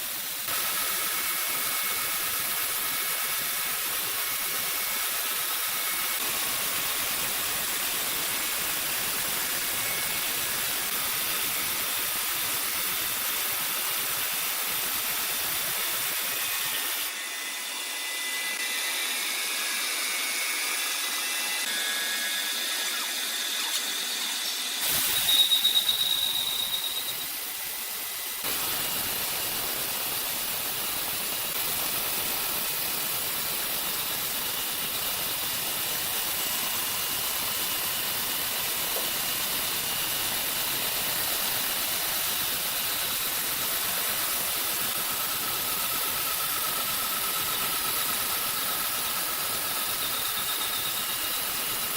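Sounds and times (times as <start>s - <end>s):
woodworking machinery running: 15.2s - 31.7s
loud high-pitched squeal: 16.2s - 28.6s, 46.0s - 51.9s.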